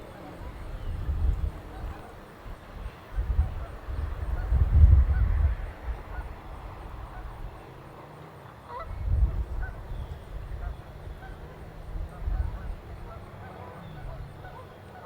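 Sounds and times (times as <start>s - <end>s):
geese honking: 8.7s - 15.0s.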